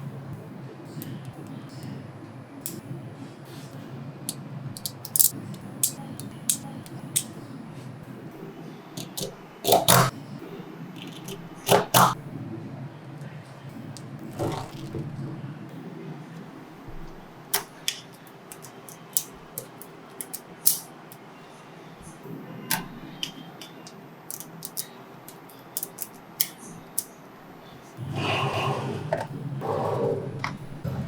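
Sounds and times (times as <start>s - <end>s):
magnetic balls clicking together: 4.8s - 7.4s, 17.6s - 20.9s, 23.8s - 24.9s, 25.8s - 27.1s.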